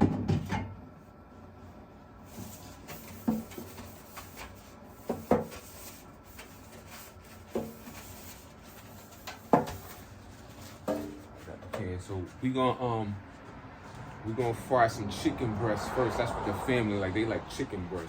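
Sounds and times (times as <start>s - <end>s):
objects knocking and clunking: 0.0s - 0.8s, 3.0s - 5.7s, 7.4s - 8.1s, 9.1s - 11.9s.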